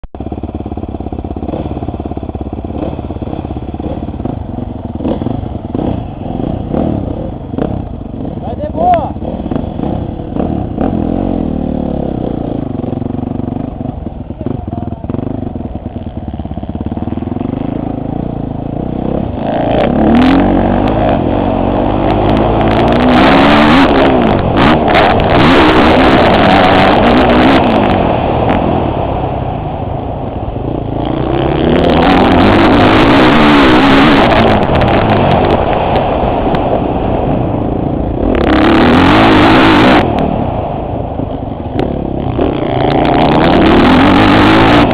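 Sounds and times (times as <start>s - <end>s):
motocross bike engine revving: 0.2s - 29.6s, 30.5s - 44.9s
wind noise over microphone: 19.1s - 44.9s.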